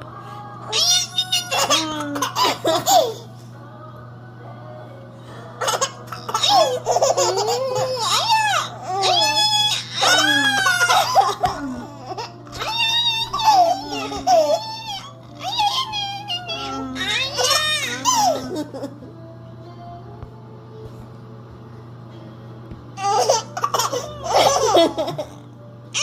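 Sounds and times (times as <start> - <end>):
baby laughing and squealing: 0.7 - 3.3, 5.6 - 18.9, 23.0 - 25.4.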